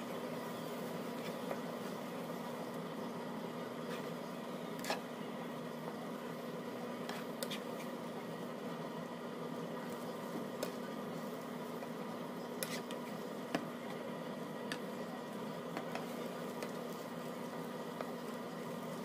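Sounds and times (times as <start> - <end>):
eggs frying in a pan: 0.0 - 19.0
turner tapping and scraping pan: 3.8 - 5.2, 6.9 - 8.0, 9.9 - 11.0, 11.9 - 14.0, 14.6 - 14.9, 15.7 - 17.1.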